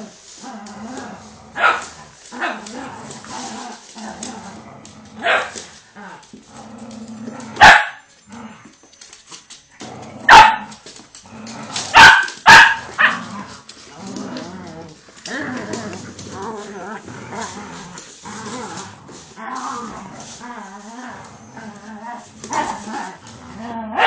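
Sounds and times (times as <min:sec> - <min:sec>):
dogs barking: 0:07.6 - 0:08.1, 0:10.3 - 0:10.7, 0:11.9 - 0:13.2.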